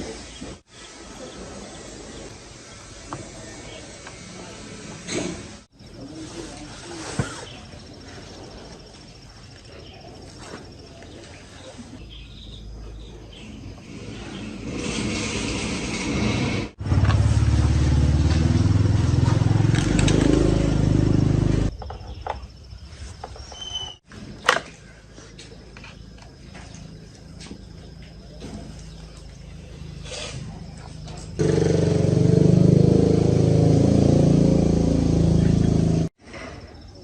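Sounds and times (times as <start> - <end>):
chainsaw engine running: 16.8 - 21.7, 31.4 - 36.1.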